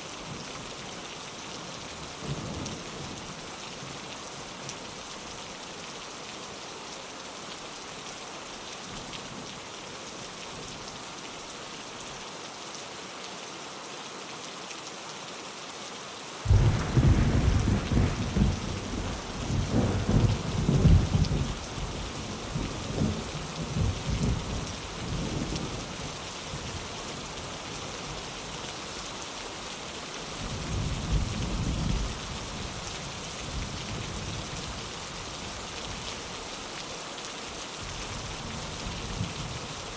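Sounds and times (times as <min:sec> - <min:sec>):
rain on a window: 0:00.0 - 0:39.9
thunder rumbling: 0:16.5 - 0:25.2.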